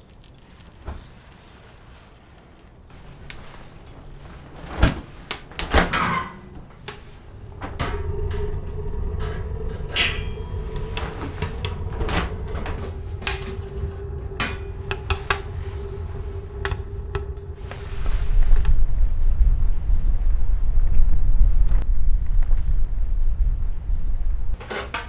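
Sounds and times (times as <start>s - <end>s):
low wind rumble: 0.0s - 25.0s
wind buffeting microphone: 2.8s - 24.6s
knocks and clatter of handling: 2.9s - 18.1s, 24.6s - 25.0s
faint whistling tone: 2.9s - 21.7s.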